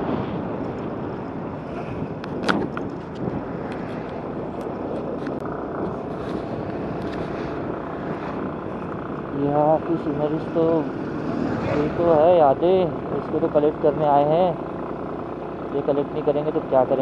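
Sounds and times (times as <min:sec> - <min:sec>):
wind rushing on microphone: 0:00.0 - 0:09.4
vehicle noise: 0:00.0 - 0:17.0.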